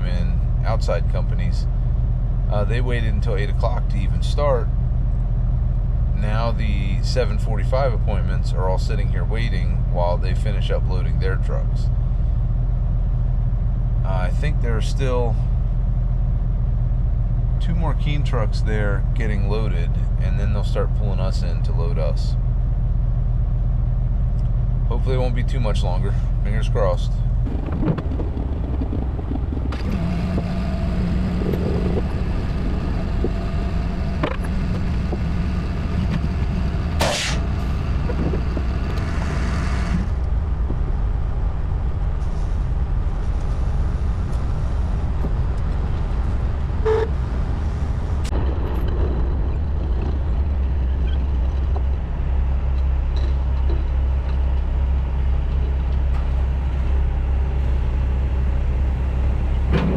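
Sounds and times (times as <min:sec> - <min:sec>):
diesel truck engines rumbling: 0:00.0 - 0:59.9
air hiss: 0:37.0 - 0:37.5
burst of air: 0:37.0 - 0:37.5.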